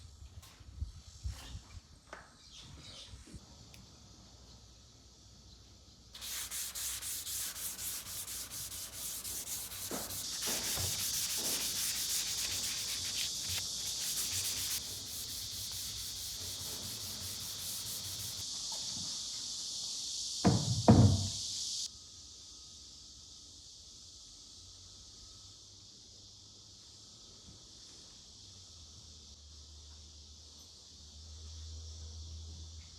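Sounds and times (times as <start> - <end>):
sandpaper rubbing on wood: 6.2 - 18.4.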